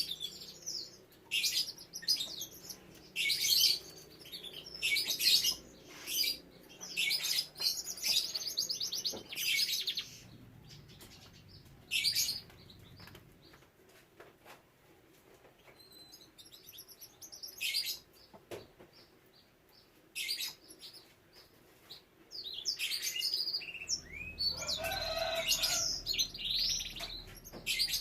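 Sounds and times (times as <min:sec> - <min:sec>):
canary singing trilled notes: 0:22.6 - 0:28.0.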